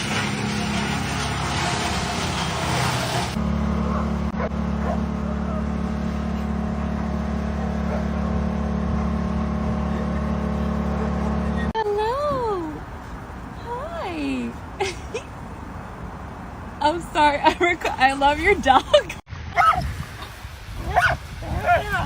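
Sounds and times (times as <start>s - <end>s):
vehicle engine droning: 0.0s - 14.7s.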